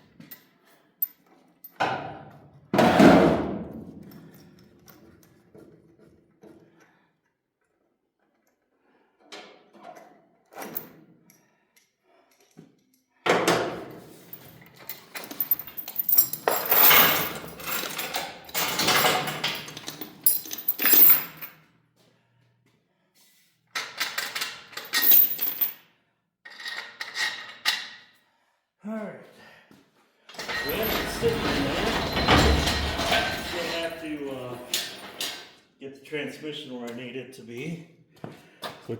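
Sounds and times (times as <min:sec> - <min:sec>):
metal clinking and jangling: 0:14.2 - 0:21.6, 0:24.0 - 0:25.8, 0:30.4 - 0:35.4.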